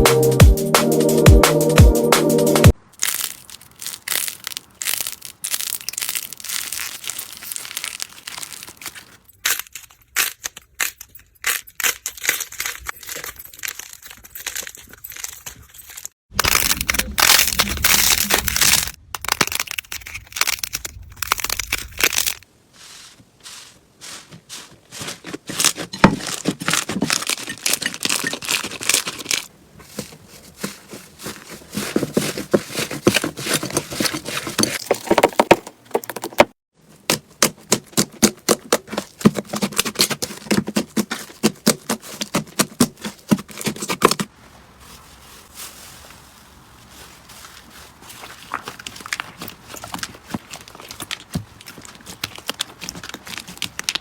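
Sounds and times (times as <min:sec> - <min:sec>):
slime crackling and popping: 0:03.0 - 0:15.3, 0:16.4 - 0:22.4, 0:48.2 - 0:54.0.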